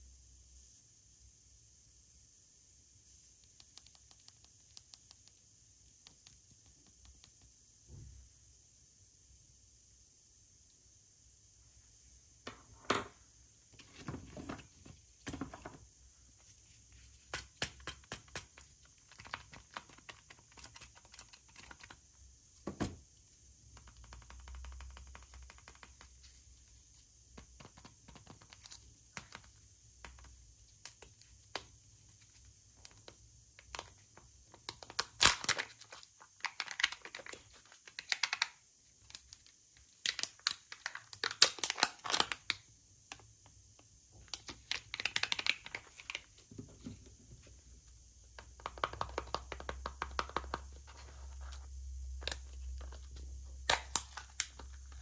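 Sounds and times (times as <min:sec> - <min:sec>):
toy packages clicking and tapping: 0:32.8 - 0:42.6, 0:44.3 - 0:46.3.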